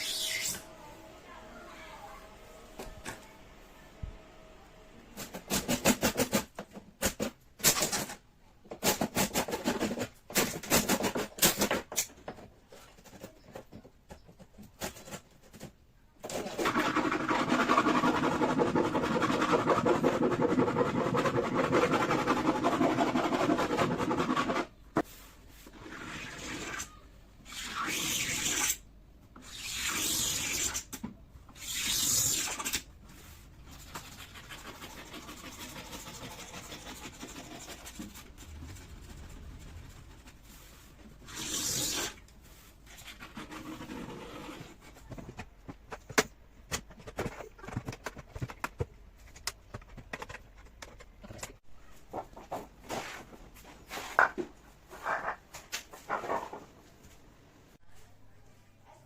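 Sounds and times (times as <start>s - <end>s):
hand sanding wood: 16.6s - 24.7s, 33.8s - 44.7s.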